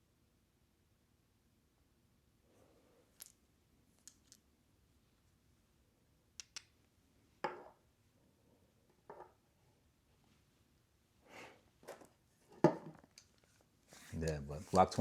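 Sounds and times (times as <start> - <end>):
small hard objects clicking: 3.2 - 3.4, 4.0 - 4.4, 6.4 - 6.7
object knocked down on table: 7.4 - 7.8, 12.6 - 13.0.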